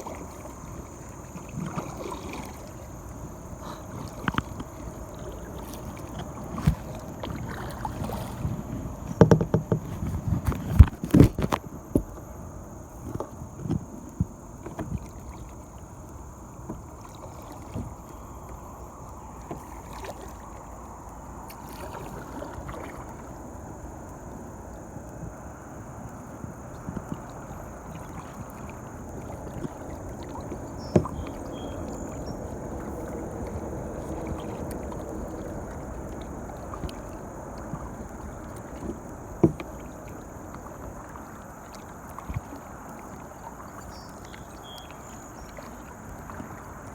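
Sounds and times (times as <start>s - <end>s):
river water: 0.0s - 46.9s
paddle knocks: 3.6s - 12.2s, 28.0s - 35.8s, 36.6s - 46.7s.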